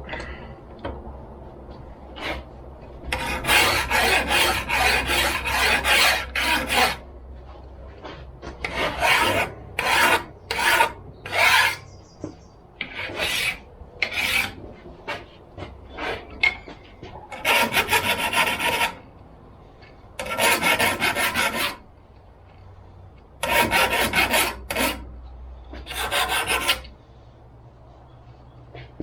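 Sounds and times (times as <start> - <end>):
file scraping on steel: 3.1 - 7.0, 8.6 - 12.0, 12.8 - 15.3, 15.9 - 19.1, 20.2 - 21.9, 23.4 - 25.1, 25.7 - 27.0.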